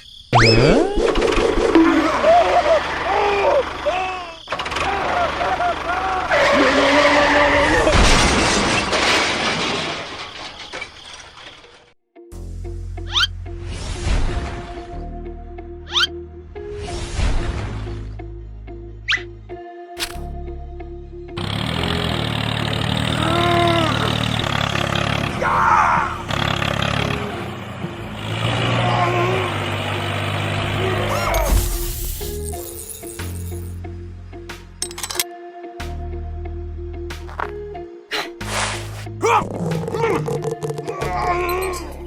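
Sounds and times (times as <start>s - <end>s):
engine running low: 1.3s - 7.0s, 21.2s - 31.2s
loud crash: 7.6s - 11.8s.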